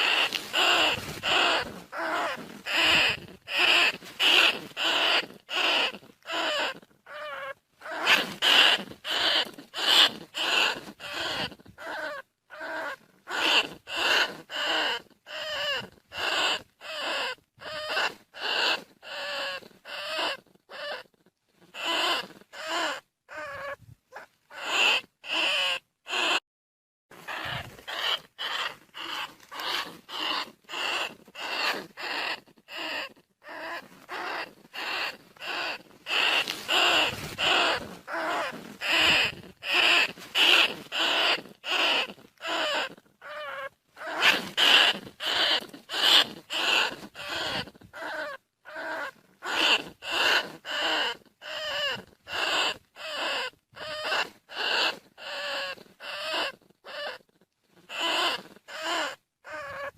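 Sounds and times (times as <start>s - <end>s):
rat squeaking: 0.0s - 26.4s, 27.2s - 59.9s.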